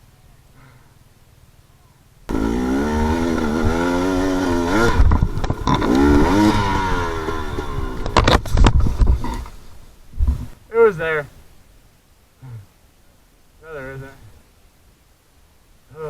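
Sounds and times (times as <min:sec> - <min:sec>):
dirt bike engine revving: 0:02.3 - 0:09.6.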